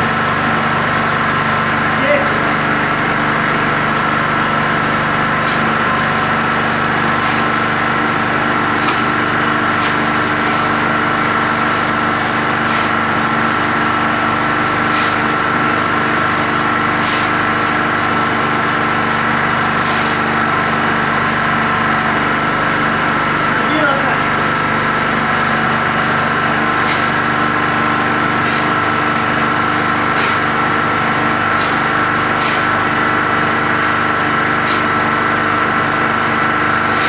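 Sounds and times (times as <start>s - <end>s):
concrete mixer running: 0.0s - 37.0s.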